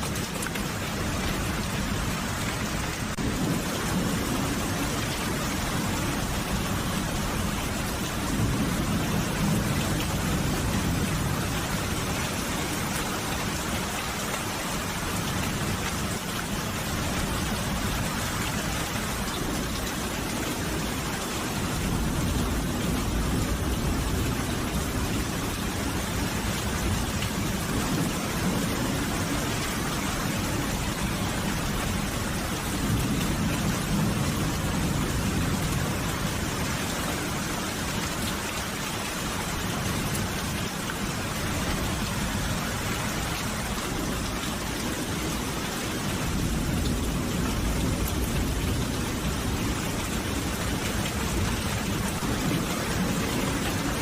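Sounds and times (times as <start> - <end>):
steady rain falling: 0.0 - 54.0
low rolling thunder: 0.1 - 14.0, 41.1 - 54.0.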